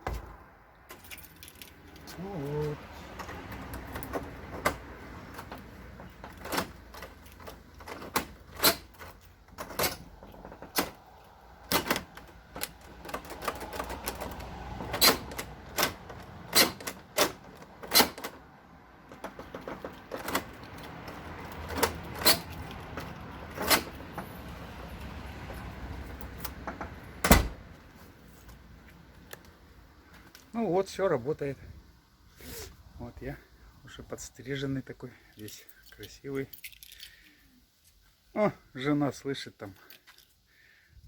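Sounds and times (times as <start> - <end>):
metallic door lock clicks: 11.6 - 18.4.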